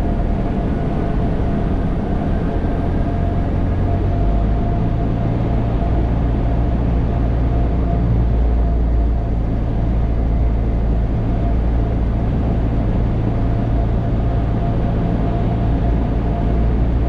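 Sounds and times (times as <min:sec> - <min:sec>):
aircraft engine and propeller drone: 0:00.0 - 0:17.0.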